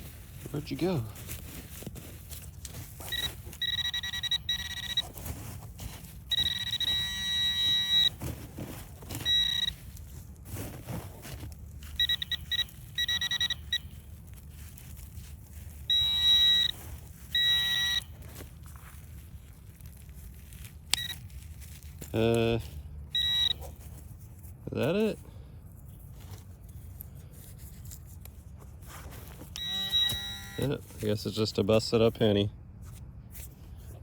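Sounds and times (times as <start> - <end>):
metal detector pinpointer buzzing: 3.0 - 5.2, 6.3 - 8.2, 9.2 - 9.8, 12.0 - 14.0, 15.8 - 18.2, 20.9 - 21.2, 23.1 - 23.8, 29.5 - 30.8.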